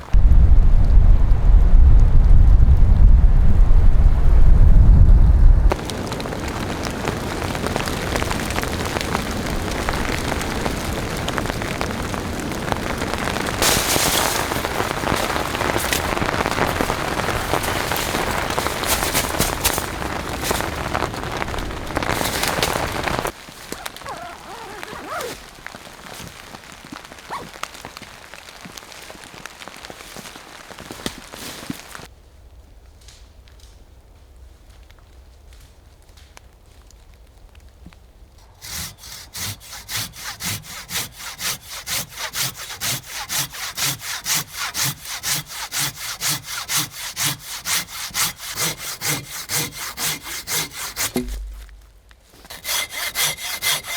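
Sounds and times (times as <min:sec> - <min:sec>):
heavy rain: 0:00.0 - 0:32.1
raindrops clicking on surface: 0:05.7 - 0:32.1.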